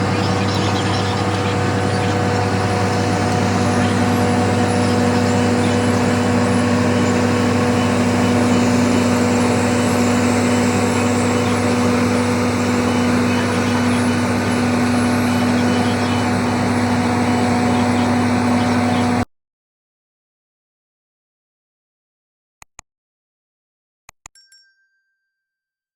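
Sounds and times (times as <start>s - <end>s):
large diesel engine running: 0.0s - 19.2s.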